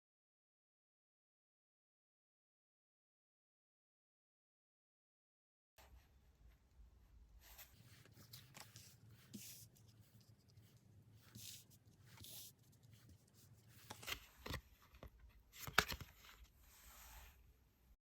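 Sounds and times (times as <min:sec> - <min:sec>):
cards swishing and sliding: 0:07.4 - 0:14.7, 0:15.6 - 0:17.4
cards tapping and clicking: 0:13.8 - 0:16.2.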